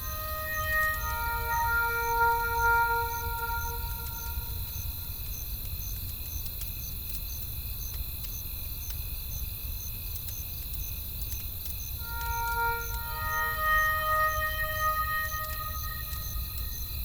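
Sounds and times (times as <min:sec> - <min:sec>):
crickets chirping: 0:00.0 - 0:17.0
campfire rumbling and crackling: 0:04.5 - 0:12.0.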